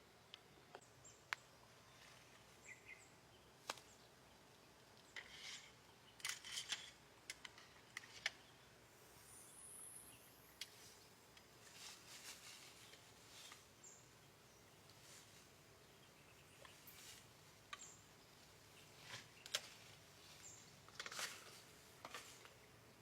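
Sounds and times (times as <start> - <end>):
thin high-pitched whine: 9.0 - 11.0.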